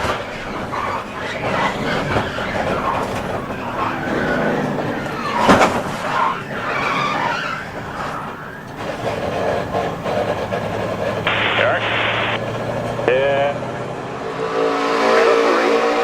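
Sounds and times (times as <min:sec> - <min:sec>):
car engine: 0:00.0 - 0:16.0
tyres squealing: 0:00.0 - 0:16.0.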